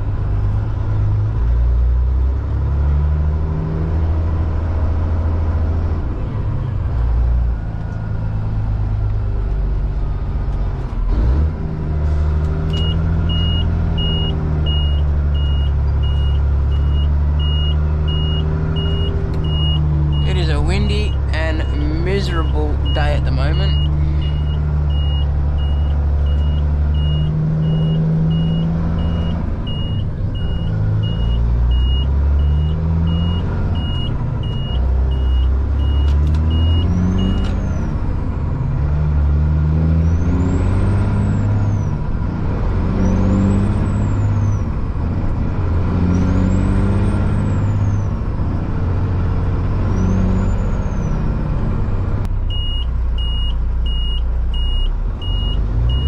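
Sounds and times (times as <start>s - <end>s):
diesel truck engine: 0.0s - 56.0s
high regular beep: 12.8s - 30.0s.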